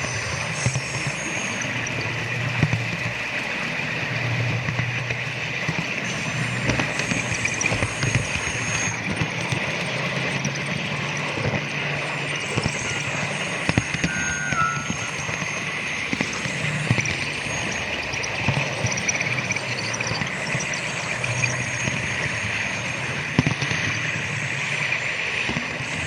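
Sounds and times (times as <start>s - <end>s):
model train hum: 0.0s - 26.0s.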